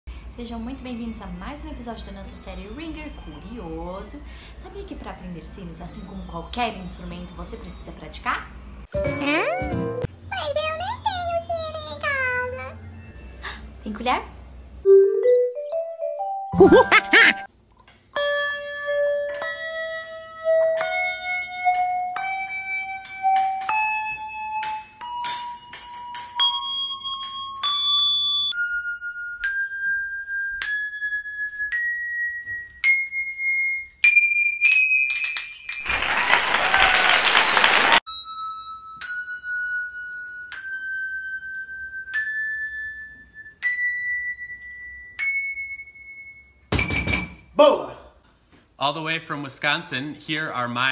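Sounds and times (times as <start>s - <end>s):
metal spoons ringing: 22.2s - 35.8s, 38.1s - 47.5s.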